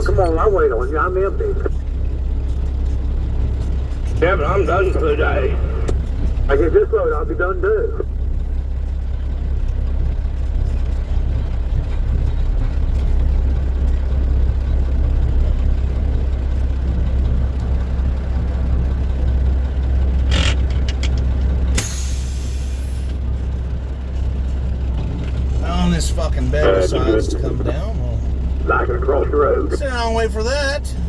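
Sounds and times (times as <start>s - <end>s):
diesel engine rumbling: 0.0s - 31.0s.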